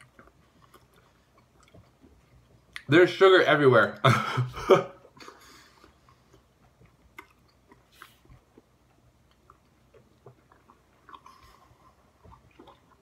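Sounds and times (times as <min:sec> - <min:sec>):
wet bubblegum chewing: 0:06.0 - 0:13.0.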